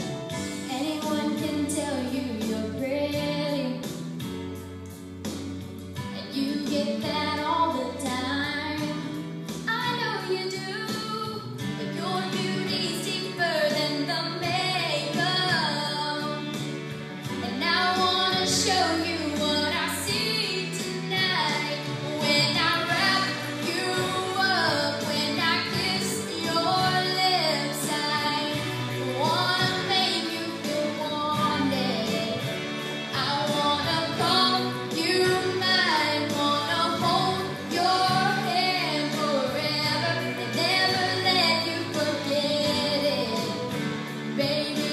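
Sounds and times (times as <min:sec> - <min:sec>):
woman singing: 0:00.0 - 0:04.0, 0:06.1 - 0:16.6, 0:17.3 - 0:44.9
backing track: 0:00.0 - 0:44.9.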